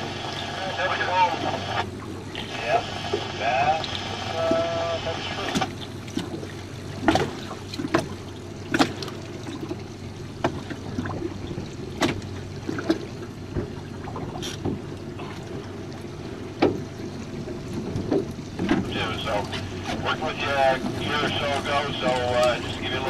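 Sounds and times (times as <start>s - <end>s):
steady low rumble: 0.0s - 23.0s
water lapping against boat hull: 0.0s - 23.0s
sharp slaps on hull: 5.4s - 9.8s, 10.4s - 10.8s, 11.9s - 15.5s, 16.6s - 16.9s, 17.9s - 20.1s.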